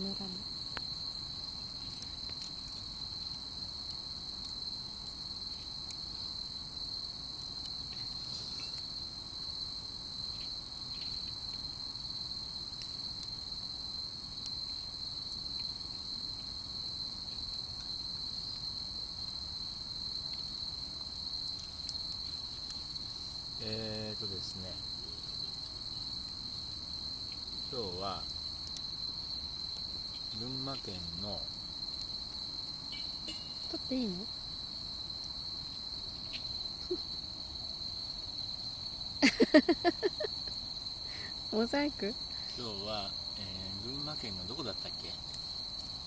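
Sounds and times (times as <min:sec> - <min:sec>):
crickets trilling: 0:00.0 - 0:46.0
faint ticks: 0:20.2 - 0:24.0, 0:31.9 - 0:32.2.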